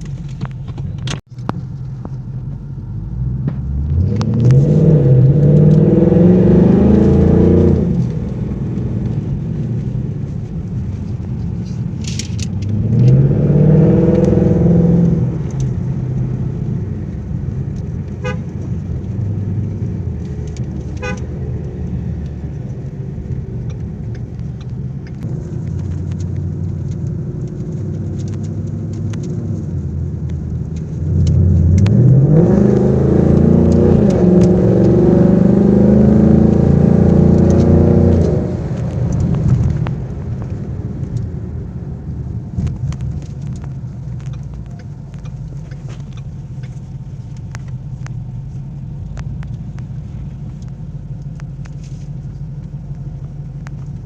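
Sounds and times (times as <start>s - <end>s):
car engine revving: 2.5s - 54.0s
car horn toots: 18.2s - 18.6s, 21.0s - 21.4s.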